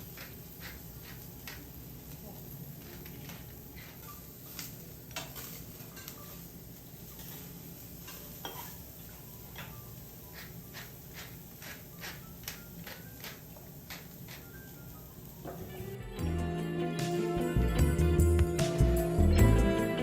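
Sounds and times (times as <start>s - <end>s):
metal utensils clinking: 2.9s - 14.9s.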